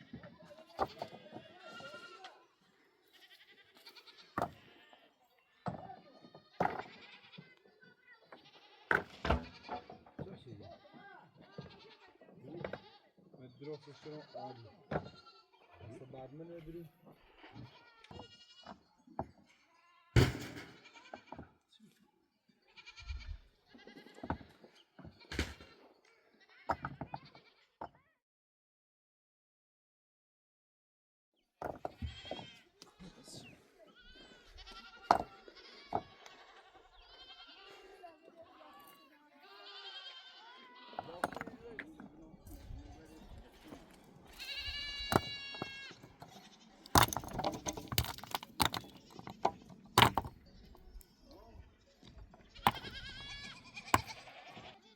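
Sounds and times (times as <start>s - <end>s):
goats bleating: 0.0s - 16.0s, 17.1s - 18.8s, 22.7s - 27.8s, 32.0s - 48.9s, 52.3s - 54.9s
clicks and clattering knocks: 43.7s - 50.9s.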